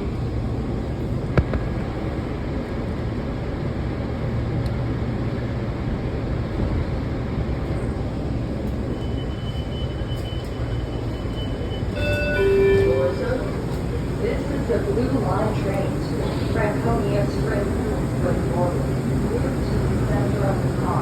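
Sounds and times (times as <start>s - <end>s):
faint high steady tone: 11.8s - 13.8s.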